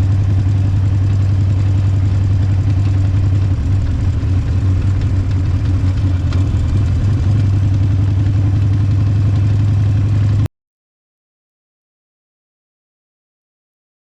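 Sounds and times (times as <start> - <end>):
motorcycle engine idling: 0.0 - 10.5.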